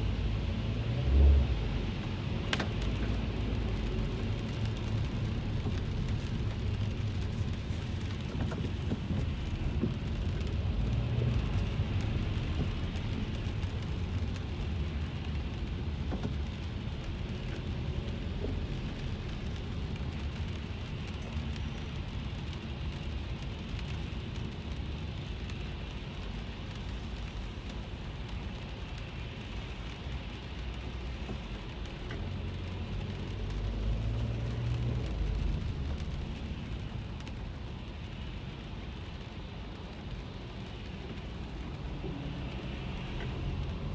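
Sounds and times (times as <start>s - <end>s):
car driving rumble: 0.0s - 25.3s, 29.4s - 43.9s
rain on car roof: 0.0s - 43.9s.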